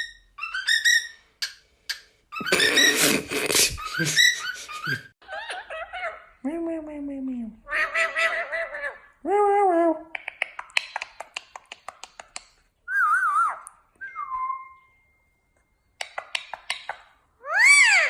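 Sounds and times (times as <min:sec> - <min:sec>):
parrot clicking: 0:10.1 - 0:12.7, 0:16.0 - 0:17.1
parrot whistling: 0:12.9 - 0:15.1.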